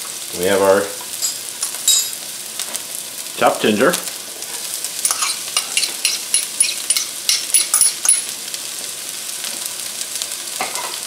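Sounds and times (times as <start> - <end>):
onions sizzling in oil: 0.0 - 11.0
metal spoon scraping a bowl: 5.1 - 7.1.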